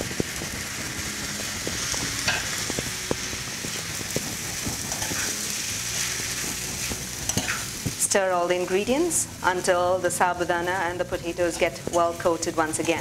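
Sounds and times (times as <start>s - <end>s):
food sizzling in a wok: 0.0s - 13.0s
spatula scraping a pan: 3.7s - 8.0s.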